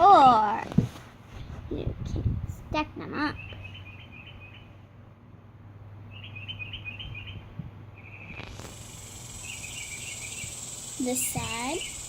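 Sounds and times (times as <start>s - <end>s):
high-pitched chirps: 8.0s - 12.0s.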